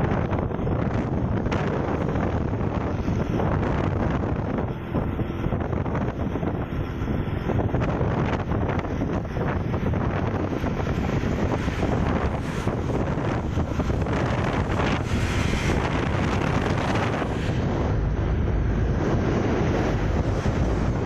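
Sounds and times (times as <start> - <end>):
road noise: 0.0 - 21.0
wind buffeting microphone: 0.0 - 21.0.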